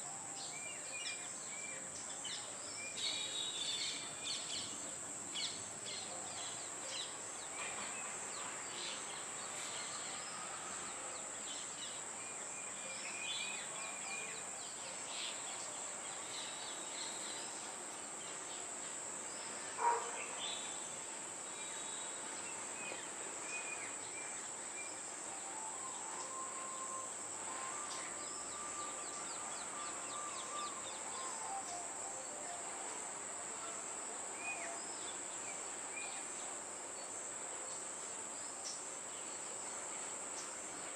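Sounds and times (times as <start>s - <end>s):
high-pitched insect drone: 25.2s - 33.0s.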